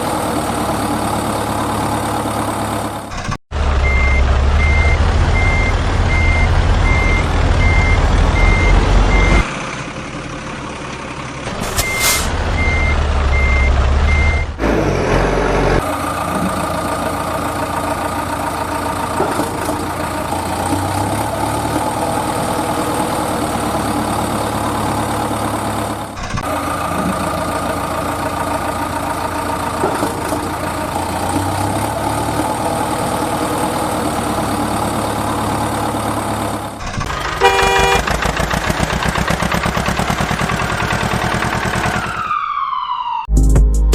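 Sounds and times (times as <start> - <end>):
truck engine running: 0.0 - 42.6
reversing alarm beeping: 3.8 - 9.5, 11.7 - 14.6.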